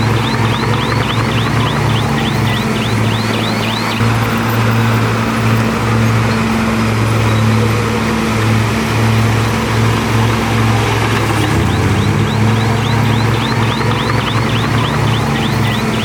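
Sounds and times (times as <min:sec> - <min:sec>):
heavy diesel engine droning: 0:00.0 - 0:16.0.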